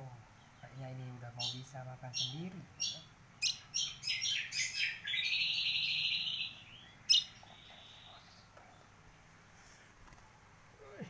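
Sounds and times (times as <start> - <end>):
nestling bird begging chirps: 0.3 - 8.5.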